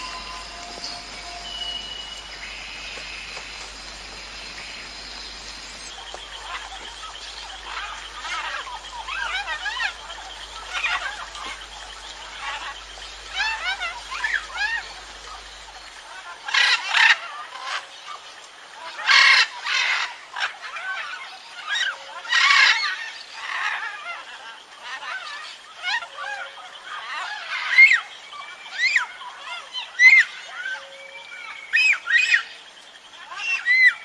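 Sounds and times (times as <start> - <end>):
harsh bird calls: 0.0 - 17.9
birds chirping: 0.0 - 20.4.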